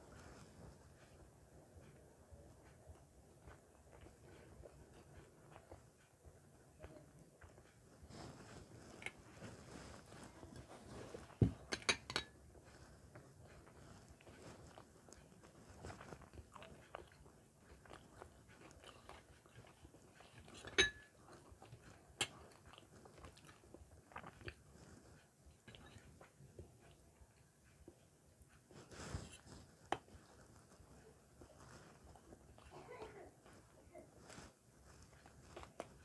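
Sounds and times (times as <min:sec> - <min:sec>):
chewing and mouth sounds: 0:01.0 - 0:07.8, 0:08.8 - 0:28.0, 0:29.1 - 0:36.0
plates clinking: 0:11.4 - 0:12.4, 0:20.7 - 0:21.0.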